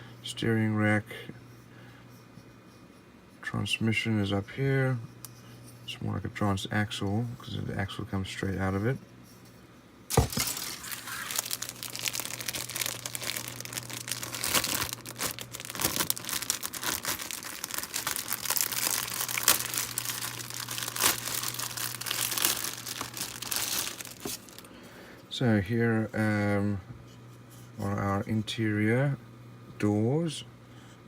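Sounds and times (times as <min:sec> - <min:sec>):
plastic bag crinkling: 0:10.1 - 0:24.7.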